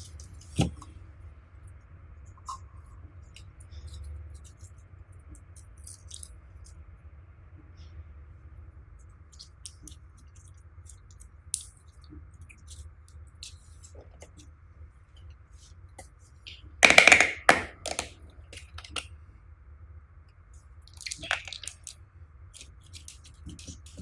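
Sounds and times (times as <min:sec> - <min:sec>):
slime squished by hand: 0:21.0 - 0:22.0.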